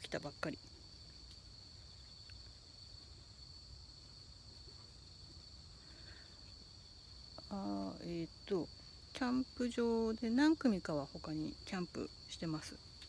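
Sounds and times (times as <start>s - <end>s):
woman's voice: 0.0s - 0.6s, 7.4s - 12.8s
night insects trilling: 0.0s - 13.0s.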